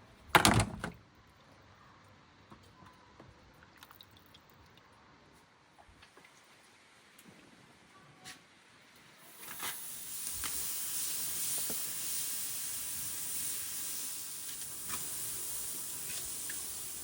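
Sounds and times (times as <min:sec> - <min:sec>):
food sizzling on a grill: 0:09.1 - 0:17.0.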